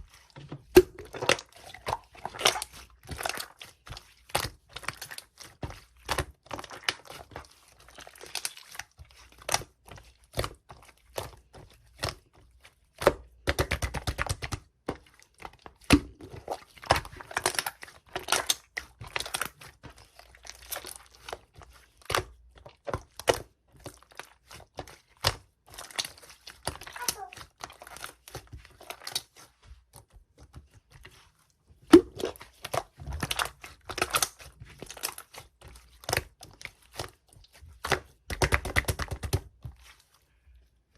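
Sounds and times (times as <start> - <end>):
hands squishing slime: 0.0 - 40.9
slime popping and crackling: 31.9 - 37.2.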